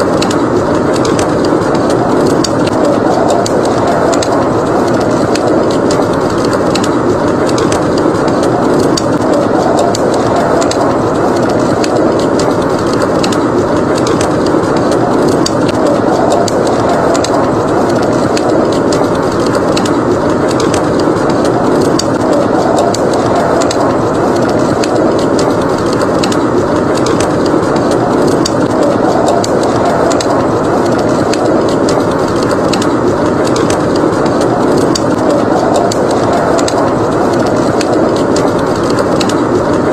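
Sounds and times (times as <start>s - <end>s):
rushing blizzard wind: 0.0s - 39.9s
wood fire crackling and popping: 0.0s - 39.9s.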